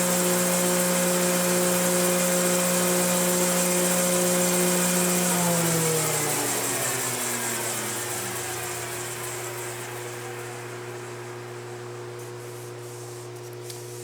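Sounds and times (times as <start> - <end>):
planer slowing down: 0.0 - 14.0.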